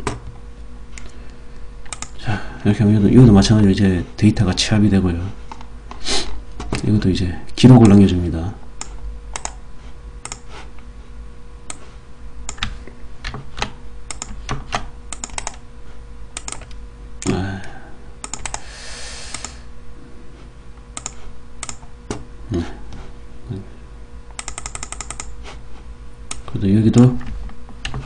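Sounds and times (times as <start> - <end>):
typing on computer keyboard: 1.9 - 2.2, 8.8 - 9.6, 13.6 - 15.6, 16.4 - 16.7, 18.2 - 18.6, 21.0 - 21.8, 24.4 - 25.3.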